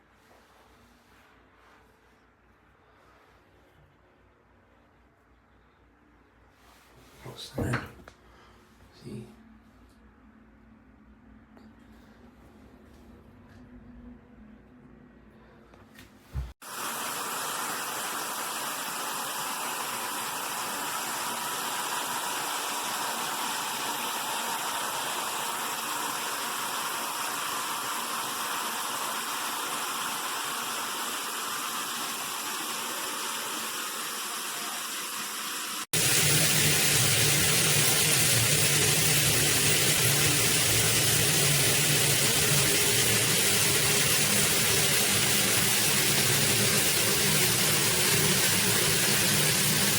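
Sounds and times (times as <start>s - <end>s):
water spraying from shower head: 16.6s - 49.9s.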